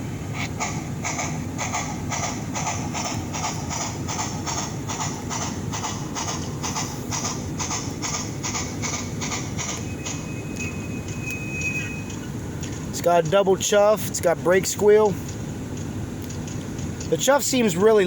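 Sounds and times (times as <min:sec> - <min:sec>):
model steam locomotive chuffs: 0:00.0 - 0:18.0.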